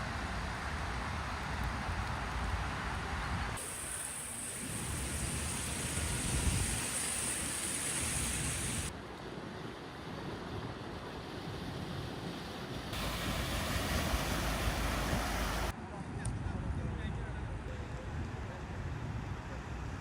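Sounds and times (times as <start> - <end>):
rushing water: 0.0 - 8.9, 11.2 - 15.8
wind: 0.0 - 20.0.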